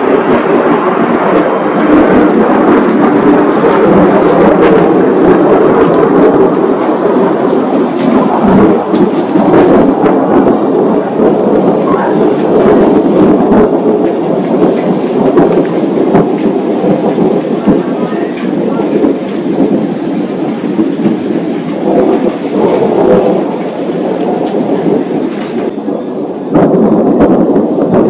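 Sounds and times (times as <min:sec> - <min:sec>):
heavy rain: 0:00.0 - 0:28.0
thunder rumbling: 0:00.0 - 0:28.0.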